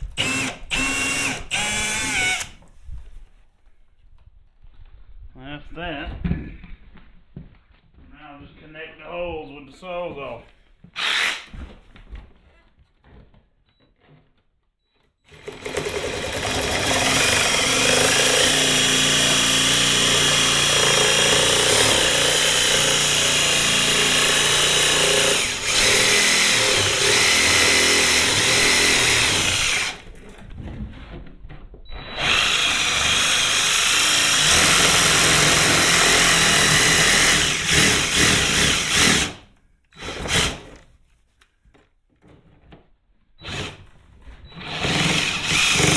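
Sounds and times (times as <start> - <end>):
reciprocating saw cutting plastic: 0.0 - 2.6, 15.3 - 30.2, 32.0 - 40.8, 43.5 - 45.9.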